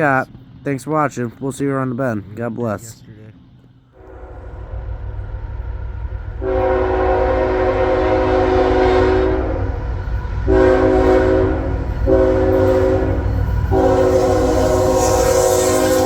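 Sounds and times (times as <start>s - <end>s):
low rumble of passing train: 0.0s - 16.0s
locomotive air horn blasts: 4.0s - 4.9s, 6.4s - 16.0s.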